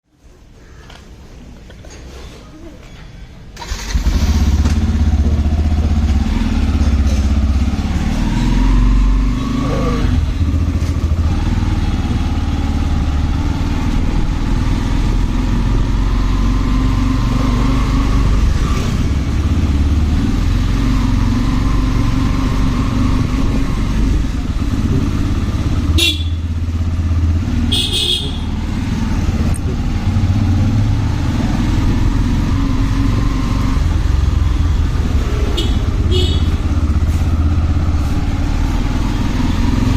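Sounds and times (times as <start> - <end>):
road noise: 0.0 - 39.9
motorcycle engine running: 3.6 - 39.9
motorcycle horn beeps: 25.9 - 26.6, 27.7 - 28.6, 35.5 - 36.7.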